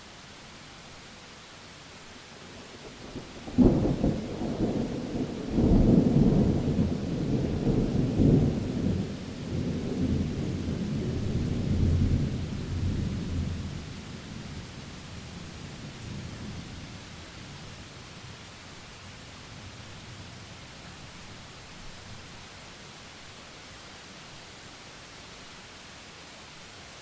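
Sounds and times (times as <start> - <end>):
steady rain: 0.0 - 27.0
rolling thunder rumble: 3.1 - 13.8.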